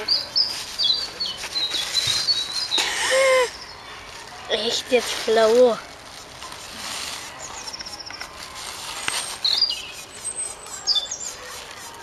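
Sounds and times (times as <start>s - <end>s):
small birds calling: 0.0s - 4.0s, 7.3s - 12.0s
steady outdoor noise: 0.0s - 12.0s.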